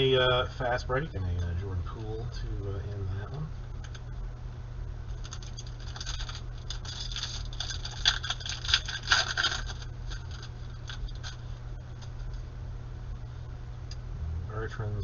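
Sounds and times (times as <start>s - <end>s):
cards rustling: 5.1s - 11.5s
foil pack crinkling: 5.1s - 11.5s.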